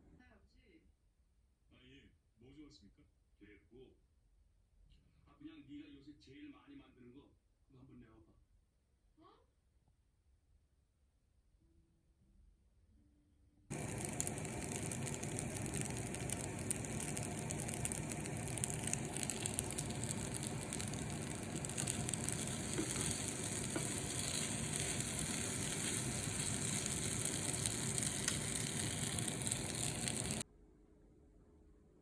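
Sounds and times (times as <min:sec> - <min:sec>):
food sizzling in a frying pan: 0:13.7 - 0:30.4.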